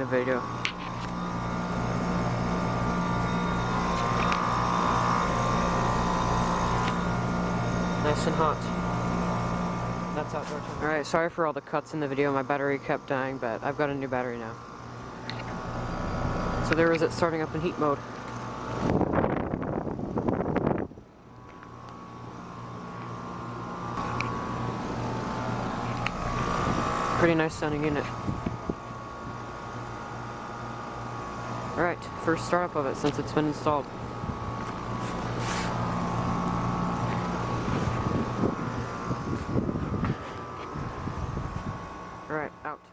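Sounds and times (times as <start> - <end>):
heat pump humming and whining: 0.0 - 42.9.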